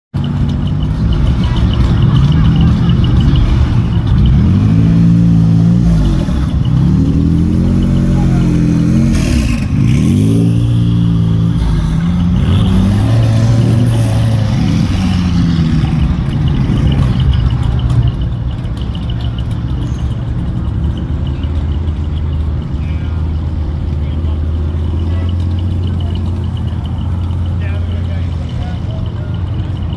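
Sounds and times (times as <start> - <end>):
car engine accelerating hard: 0.2 - 29.9.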